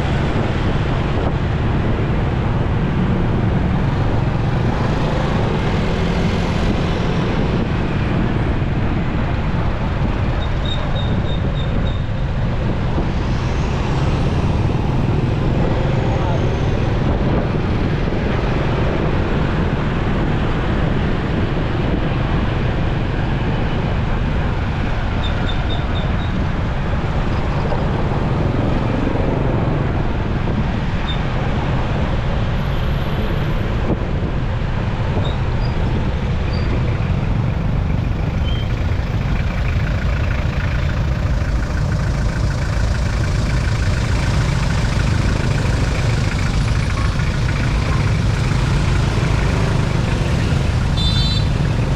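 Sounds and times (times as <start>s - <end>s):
road noise: 0.0s - 51.9s
surrounding traffic: 0.0s - 51.9s
motorcycle engine: 37.1s - 51.9s.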